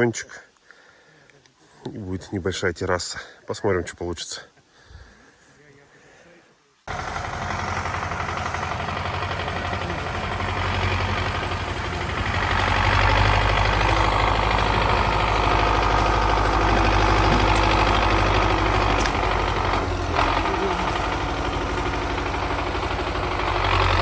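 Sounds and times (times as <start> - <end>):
engine running with deep hum: 6.9 - 24.0.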